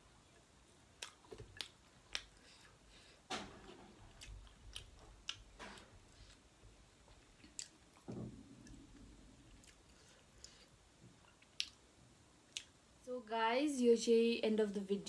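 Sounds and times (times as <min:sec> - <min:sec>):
person chewing food: 0:00.9 - 0:03.1, 0:03.9 - 0:11.8, 0:12.5 - 0:12.8.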